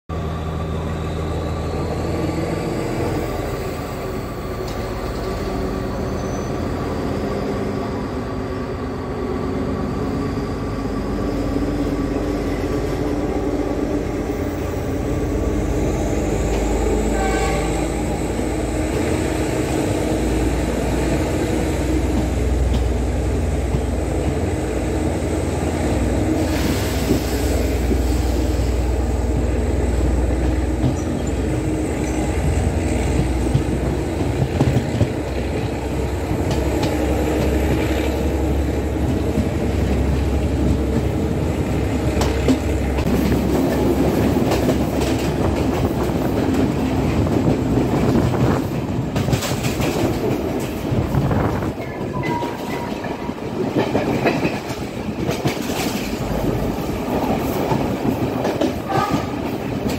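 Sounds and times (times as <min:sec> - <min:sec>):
train wheels and engine rumbling: 0:00.1 - 0:59.9
rushing air: 0:24.8 - 0:30.2.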